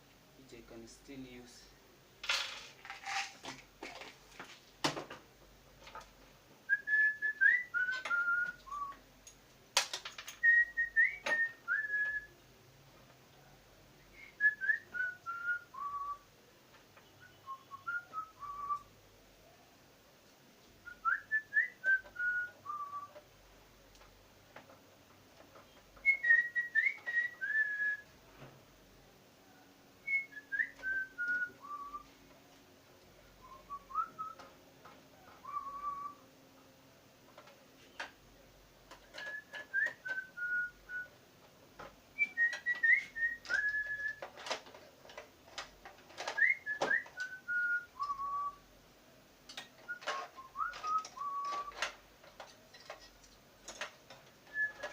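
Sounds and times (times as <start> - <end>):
clicks of small parts handled: 2.2 - 5.1, 49.5 - 54.9
person whistling a tune: 6.7 - 9.0, 10.4 - 12.3, 20.9 - 23.1, 26.0 - 28.0, 30.1 - 32.1, 33.4 - 34.4, 35.4 - 36.2, 39.2 - 41.1, 42.2 - 44.2, 46.3 - 48.6, 49.9 - 51.8, 54.5 - 54.9.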